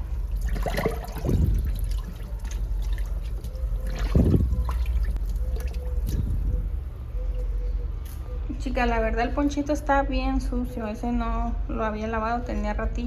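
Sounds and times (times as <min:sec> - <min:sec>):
water splashing in a tub: 0:00.0 - 0:06.5.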